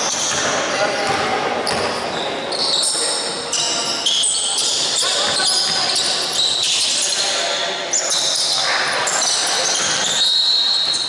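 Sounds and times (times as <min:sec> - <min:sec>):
sneakers squeaking on court: 0:00.0 - 0:11.0
voices in background: 0:00.0 - 0:11.0
basketball bouncing: 0:00.1 - 0:02.0.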